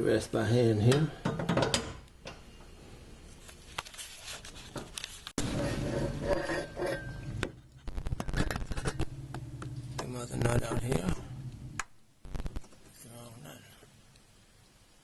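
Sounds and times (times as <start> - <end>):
scraping and handling noise: 3.2 - 9.2.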